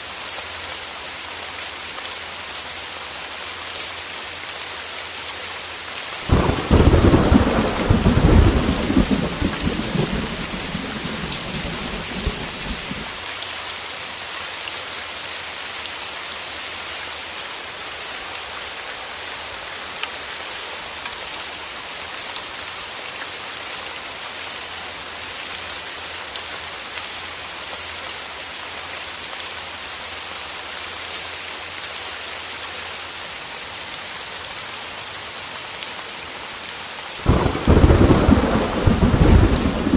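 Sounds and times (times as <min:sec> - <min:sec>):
heavy rain: 0:00.0 - 0:39.9
thunder rolling and rumbling: 0:06.3 - 0:13.1, 0:37.2 - 0:39.9.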